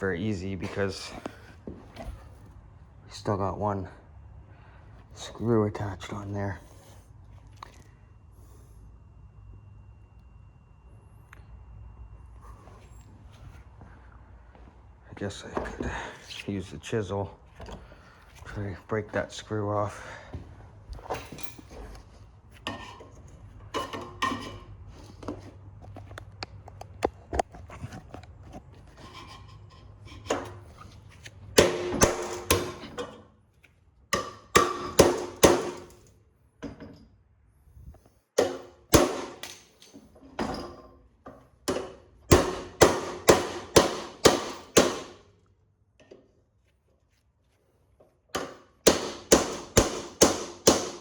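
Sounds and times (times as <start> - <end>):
hammer striking chisel: 31.6 - 33.0, 34.2 - 36.0, 38.4 - 39.6, 41.7 - 45.2, 48.4 - 51.0.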